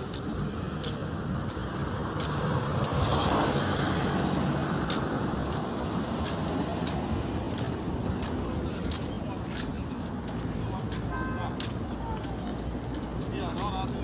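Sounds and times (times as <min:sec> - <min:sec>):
road traffic noise: 0:00.0 - 0:14.0
vehicle passing: 0:00.0 - 0:14.0.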